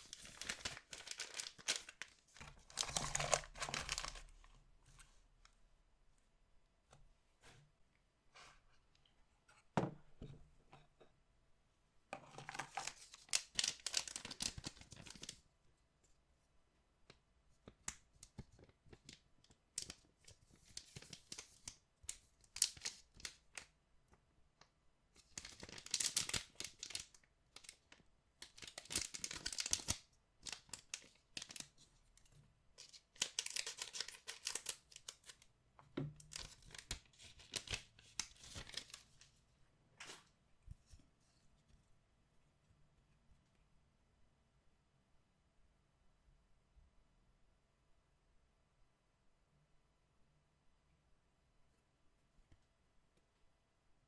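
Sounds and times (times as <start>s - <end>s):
packaging tearing and crinkling: 0.0s - 4.3s, 12.5s - 15.3s, 25.3s - 27.8s, 28.4s - 31.6s, 32.8s - 35.4s, 36.3s - 39.1s.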